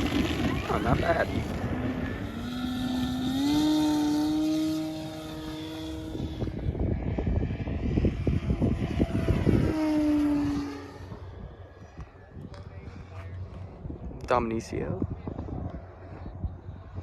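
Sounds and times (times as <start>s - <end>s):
model airplane motor buzzing: 0.0s - 12.2s
rough crackling rumble: 0.0s - 17.0s.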